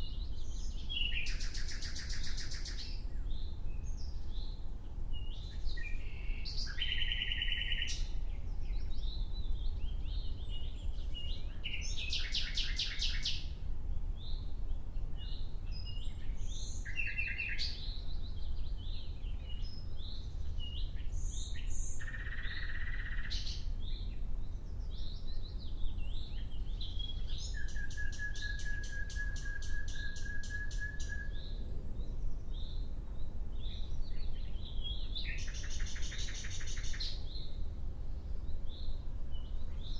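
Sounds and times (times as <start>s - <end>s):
nightingale singing: 0.0s - 13.6s, 14.2s - 37.7s
steady low rumble: 31.4s - 35.9s.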